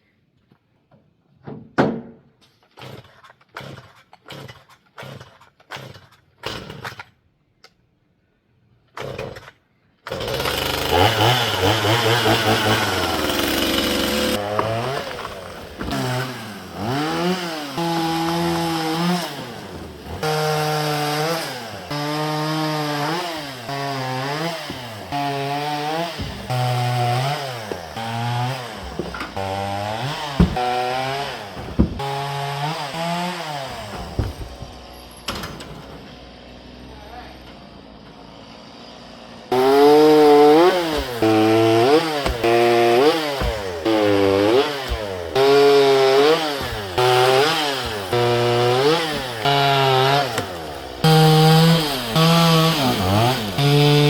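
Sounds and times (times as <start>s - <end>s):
chainsaw revving: 10.1s - 34.8s, 38.7s - 54.0s
handling knocks: 26.1s - 32.6s, 33.7s - 34.8s, 41.0s - 45.1s.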